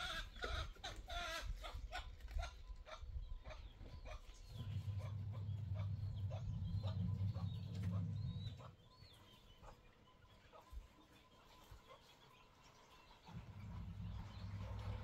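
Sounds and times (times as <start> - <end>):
small birds chirping: 0.0 - 15.0
low rumble: 4.4 - 8.7, 13.3 - 15.0.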